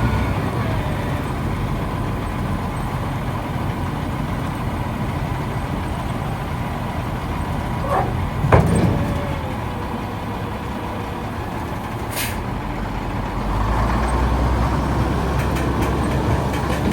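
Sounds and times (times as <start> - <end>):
truck engine running: 0.0 - 16.9
brief air hiss: 12.1 - 12.4.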